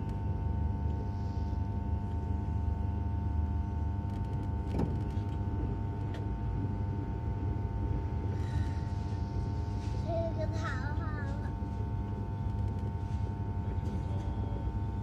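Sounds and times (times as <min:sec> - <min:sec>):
steady whine: 0:00.0 - 0:15.0.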